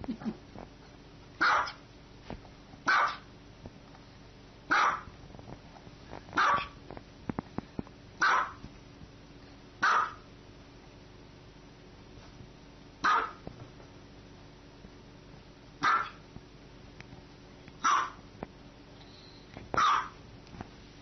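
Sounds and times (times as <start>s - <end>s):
small dog barking: 1.4s - 1.8s, 2.8s - 3.3s, 4.7s - 5.1s, 6.4s - 6.8s, 8.2s - 8.6s, 9.8s - 10.3s, 13.0s - 13.4s, 15.8s - 16.2s, 17.8s - 18.2s, 19.8s - 20.2s.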